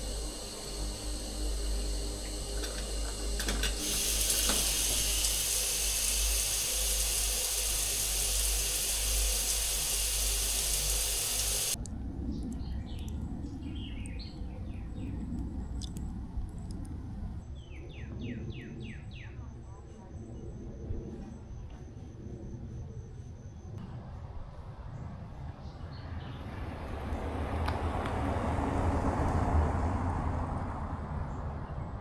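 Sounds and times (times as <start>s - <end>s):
shower water running: 0.0s - 11.8s.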